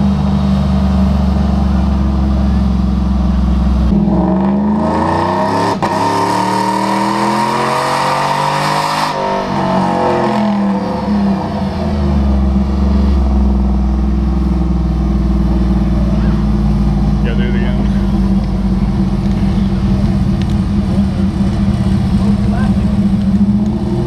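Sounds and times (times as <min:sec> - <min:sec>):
diesel truck engine revving: 0:00.0 - 0:24.0.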